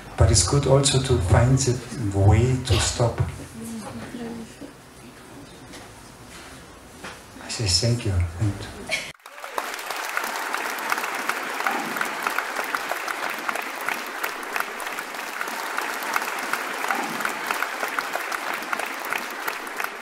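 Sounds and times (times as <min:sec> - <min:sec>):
audience applauding: 0:09.1 - 0:20.0.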